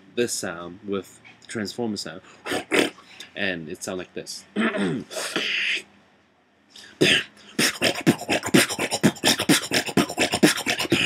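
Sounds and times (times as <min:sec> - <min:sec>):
beatboxing: 0:02.4 - 0:03.0, 0:04.6 - 0:05.9, 0:06.8 - 0:11.0.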